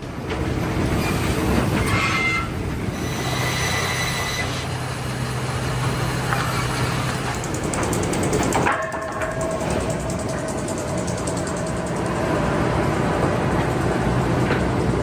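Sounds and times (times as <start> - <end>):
heavy machinery humming: 0.0 - 15.0
high metallic squeals: 0.9 - 5.3.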